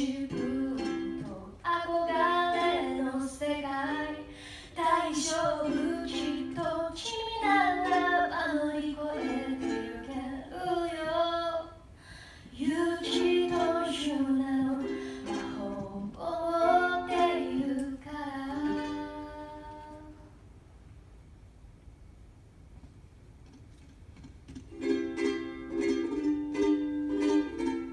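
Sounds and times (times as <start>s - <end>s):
ukulele chords plucked: 0.0s - 11.7s, 12.6s - 20.2s, 24.6s - 27.9s
woman singing: 0.0s - 11.8s, 12.5s - 20.3s.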